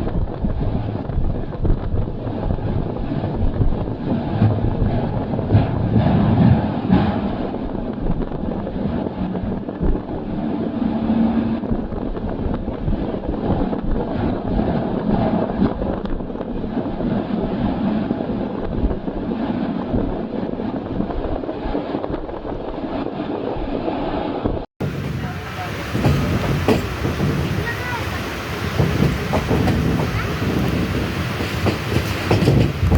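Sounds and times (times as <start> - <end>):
wind buffeting microphone: 0.0 - 32.9
passenger train running: 24.8 - 32.9.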